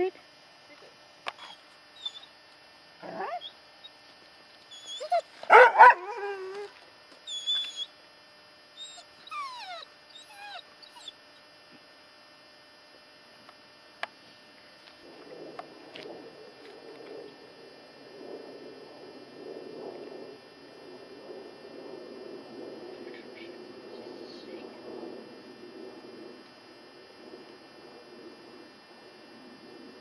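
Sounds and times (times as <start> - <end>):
dog whining and yelping: 1.4 - 2.3, 3.0 - 3.6, 4.7 - 6.7, 7.3 - 7.9, 8.8 - 11.2.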